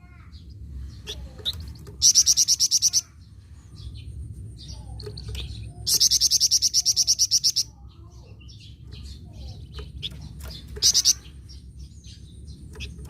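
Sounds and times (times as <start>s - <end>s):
faint bird chirps: 0.0s - 13.0s
songbird high-pitched trills: 4.6s - 13.0s.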